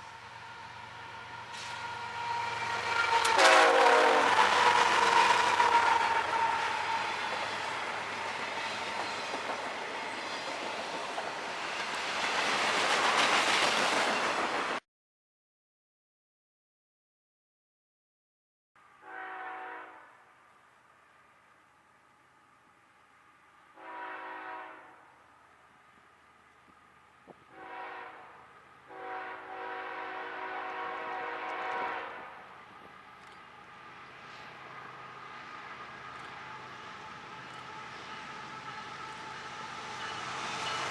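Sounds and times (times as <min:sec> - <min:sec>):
locomotive air horn: 0:01.4 - 0:07.2, 0:19.0 - 0:20.2, 0:23.8 - 0:25.2, 0:27.5 - 0:32.5
freight train wheels rattling: 0:01.5 - 0:14.8, 0:32.7 - 0:40.9.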